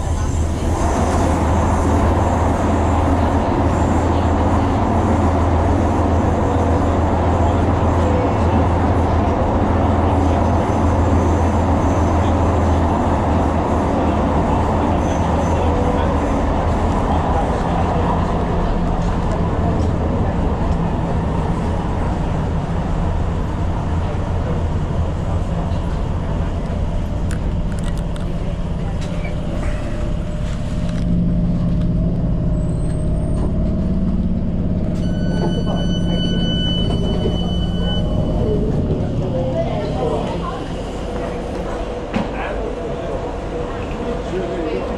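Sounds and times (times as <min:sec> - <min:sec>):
train rumbling along track: 0:00.0 - 0:44.9
high-pitched tone: 0:35.0 - 0:39.4.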